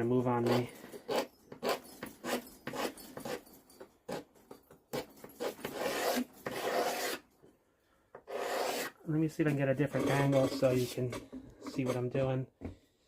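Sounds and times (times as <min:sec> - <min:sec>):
knife blade scraping wood: 0:00.4 - 0:03.5, 0:04.9 - 0:07.3, 0:08.2 - 0:09.0, 0:09.8 - 0:12.1.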